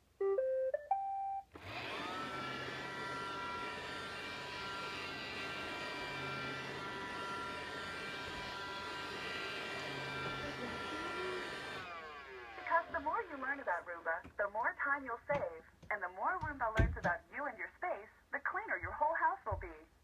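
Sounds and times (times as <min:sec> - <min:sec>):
robot vacuum motor whirring: 0:01.6 - 0:14.0.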